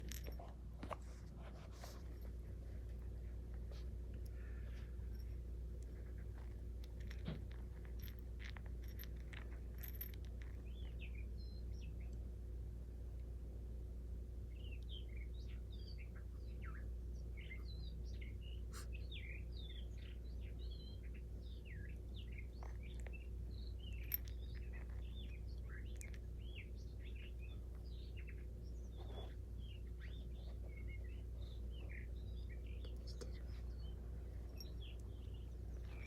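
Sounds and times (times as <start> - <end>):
low steady hum: 0.0 - 36.0
small birds chirping: 1.5 - 36.0.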